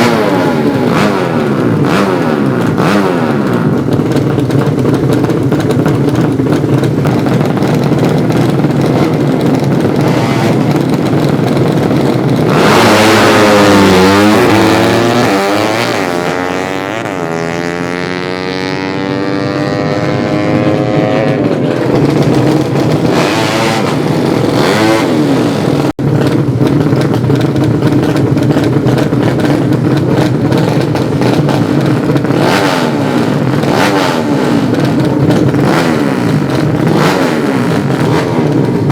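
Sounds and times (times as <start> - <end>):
motorcycle engines revving: 0.0 - 38.9.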